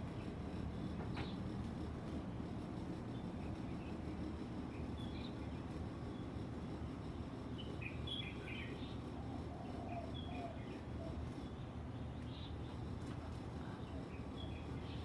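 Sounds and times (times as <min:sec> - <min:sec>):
low background hum: 0:00.0 - 0:15.0
small birds chirping: 0:03.0 - 0:06.5, 0:07.4 - 0:15.0.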